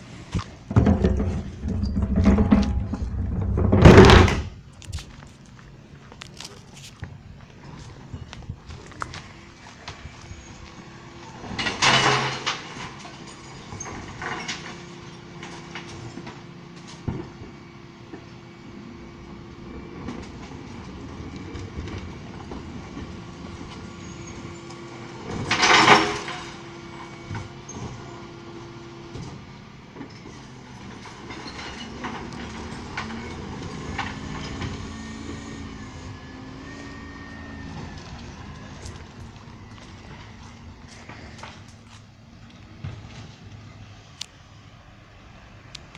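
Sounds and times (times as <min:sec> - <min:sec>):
bin lift whine: 0:00.0 - 0:45.9
idling truck and hydraulics hum: 0:00.0 - 0:45.9
bins crashing into hopper: 0:00.4 - 0:04.7, 0:11.4 - 0:17.5, 0:19.8 - 0:28.1, 0:30.9 - 0:40.4.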